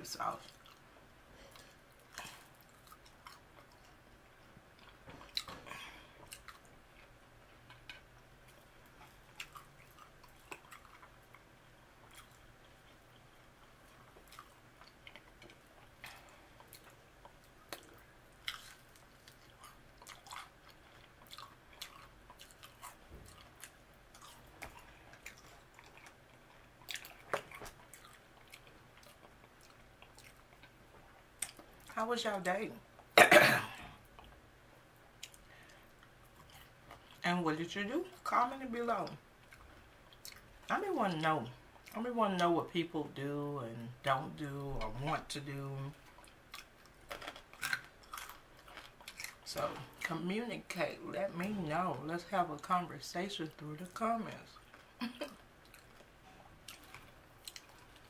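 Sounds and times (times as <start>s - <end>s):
person chewing fries: 0.4s - 32.0s, 33.8s - 37.2s, 39.1s - 40.7s, 45.9s - 50.2s, 54.6s - 58.0s.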